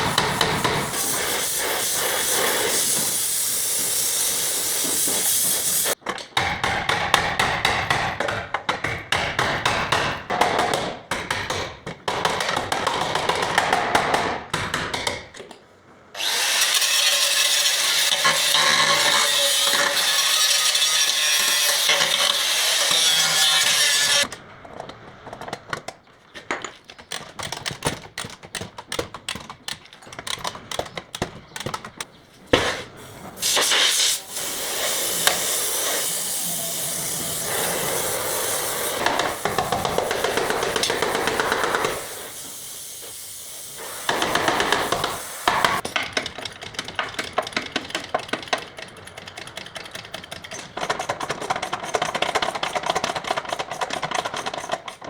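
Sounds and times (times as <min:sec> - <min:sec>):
power tool running: 0:00.0 - 0:06.0, 0:16.2 - 0:24.3, 0:33.2 - 0:45.8
rapid irregular clicking and crackling: 0:24.2 - 0:32.2, 0:44.1 - 0:55.0.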